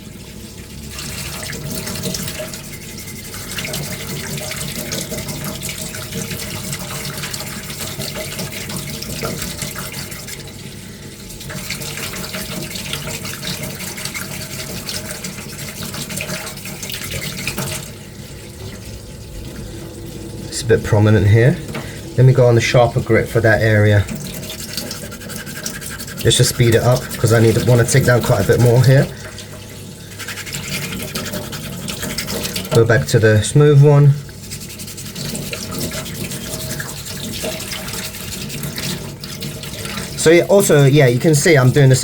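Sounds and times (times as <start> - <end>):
sandpaper rubbing under water: 1.8 - 4.9, 22.8 - 29.1, 30.0 - 33.1, 34.3 - 41.9
water sloshing: 11.4 - 42.0.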